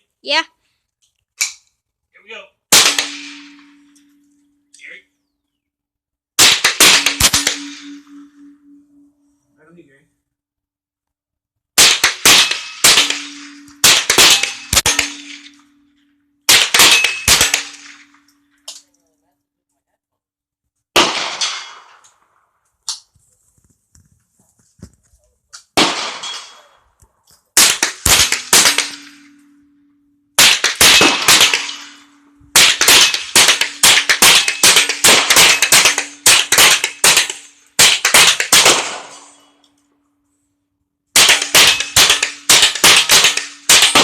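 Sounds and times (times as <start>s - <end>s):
single gunshots: 2.7s - 3.7s, 6.4s - 8.2s, 11.8s - 15.6s, 16.5s - 18.1s, 21.0s - 22.0s, 25.8s - 26.6s, 27.6s - 29.3s, 30.4s - 39.3s, 41.2s - 44.0s
rapid gunfire: 6.4s - 7.7s, 16.5s - 17.9s, 27.6s - 29.0s, 32.6s - 39.1s, 41.2s - 44.0s.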